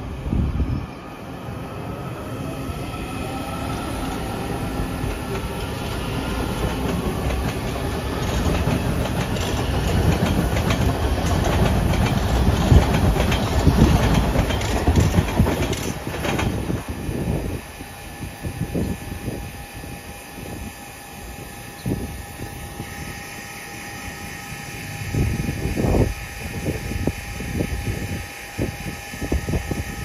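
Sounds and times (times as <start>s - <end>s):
train rumbling past: 0.0s - 30.0s
wheels clicking over rail joints: 6.4s - 16.9s.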